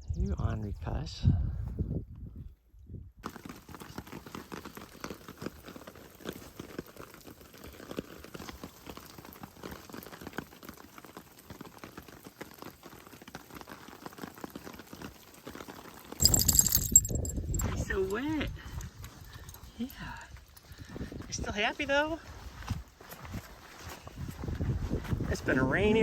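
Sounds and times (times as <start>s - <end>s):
rain pattering: 3.2s - 20.7s.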